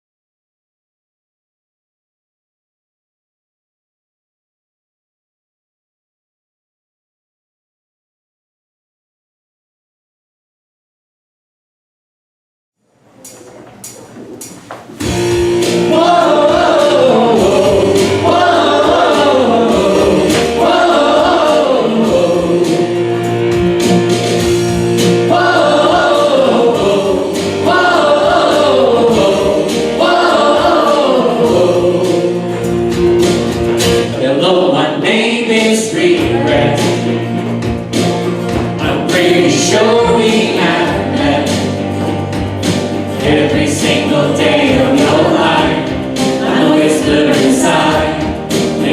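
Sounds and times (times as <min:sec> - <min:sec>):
sustained instrumental accompaniment: 0:15.0 - 0:34.3, 0:35.9 - 0:48.9
group singing a hymn: 0:15.0 - 0:48.9.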